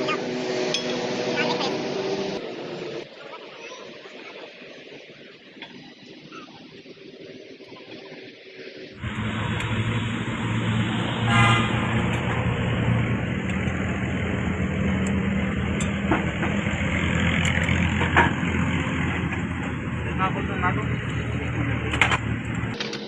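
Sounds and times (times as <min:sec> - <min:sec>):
vehicle engine running: 0:09.0 - 0:23.0
short horn toot: 0:11.2 - 0:12.1.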